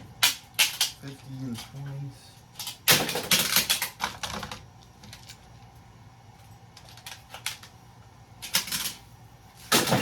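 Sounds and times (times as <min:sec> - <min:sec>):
small metal and plastic parts rattling: 0:02.6 - 0:05.4, 0:08.4 - 0:09.0.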